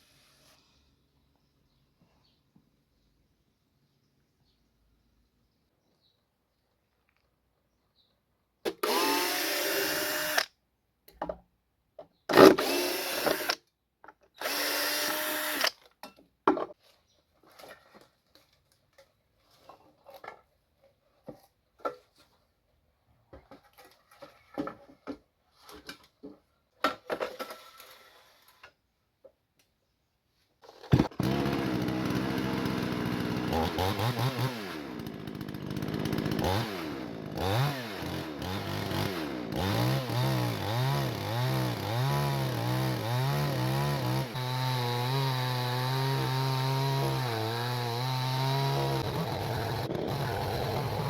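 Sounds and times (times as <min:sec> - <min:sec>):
chainsaw running: 0:08.7 - 0:10.5, 0:12.4 - 0:13.6, 0:14.4 - 0:15.7, 0:30.9 - 0:51.0
power tool motor spinning: 0:08.8 - 0:10.5, 0:12.4 - 0:13.6, 0:14.4 - 0:15.8, 0:30.9 - 0:33.7, 0:48.2 - 0:51.0.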